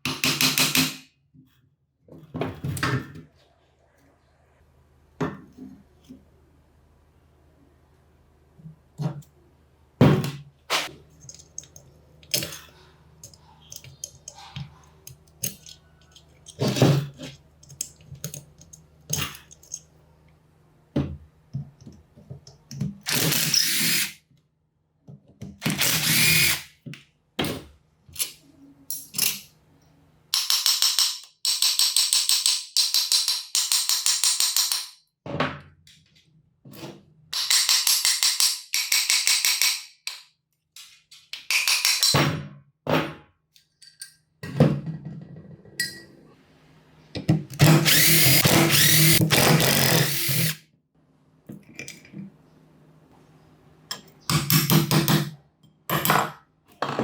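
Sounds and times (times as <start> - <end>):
metal parts clicking and knocking: 11.1 - 19.9, 30.3 - 35.0, 37.3 - 42.2
power tool pulsing: 25.7 - 26.6, 47.6 - 50.6.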